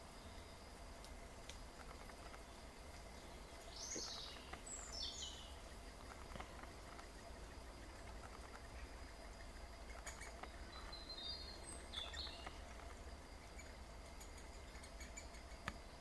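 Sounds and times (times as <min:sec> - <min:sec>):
faint scattered ticks: 0:00.0 - 0:16.0
high falling bird calls: 0:01.6 - 0:16.0.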